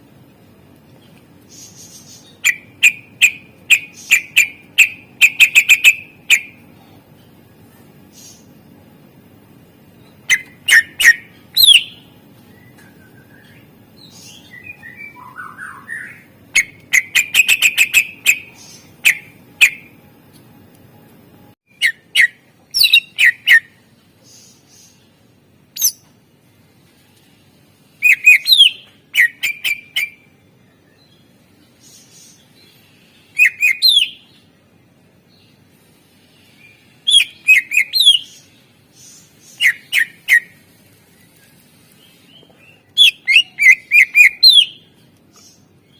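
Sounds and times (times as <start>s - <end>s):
bird singing whistled notes: 1.5s - 6.6s, 10.2s - 19.9s, 21.7s - 23.8s, 25.8s - 26.0s, 28.0s - 31.1s, 33.2s - 34.4s, 36.6s - 40.6s, 42.1s - 45.6s.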